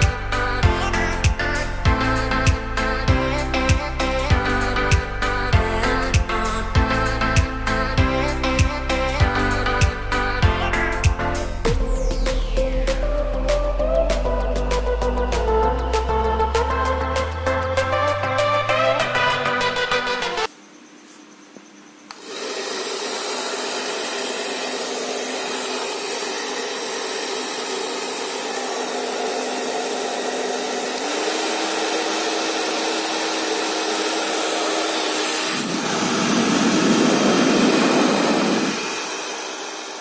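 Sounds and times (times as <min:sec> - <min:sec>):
hair dryer blowing: 0:22.1 - 0:40.0.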